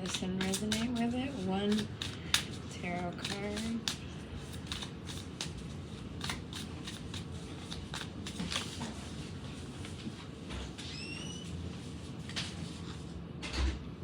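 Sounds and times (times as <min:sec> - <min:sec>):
cards being shuffled: 0:00.0 - 0:10.1
low background hum: 0:00.0 - 0:14.0.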